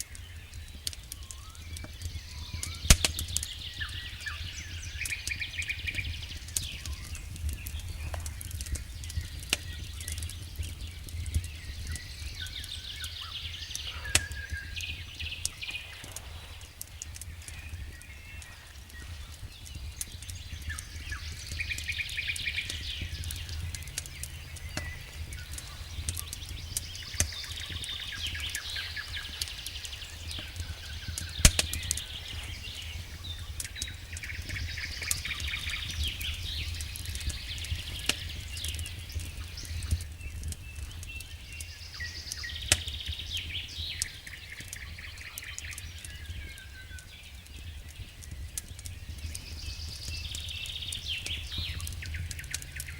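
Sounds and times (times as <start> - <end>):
fire crackling and popping: 0.0 - 52.9
flames rumbling: 0.0 - 52.9
wood snapping in fire: 0.0 - 52.9
fire hissing: 2.7 - 43.0.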